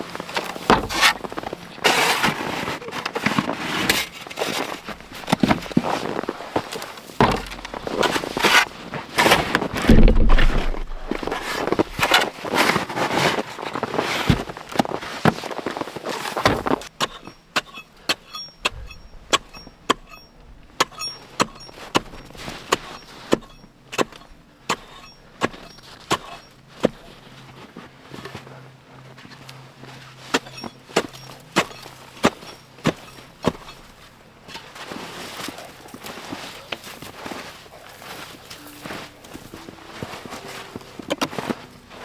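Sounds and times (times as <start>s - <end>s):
snow shovel scraping snow: 0.0s - 17.7s, 21.1s - 42.0s
sharp clicks and knocks: 9.2s - 12.3s.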